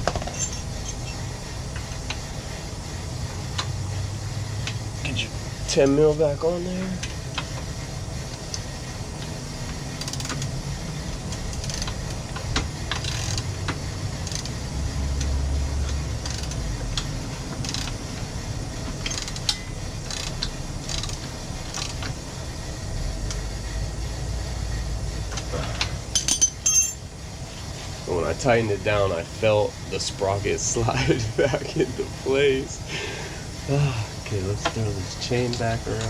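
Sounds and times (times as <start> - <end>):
steady low rumble: 0.0 - 36.0
metal clicks and clinks of wrench: 19.0 - 22.1, 26.1 - 27.0.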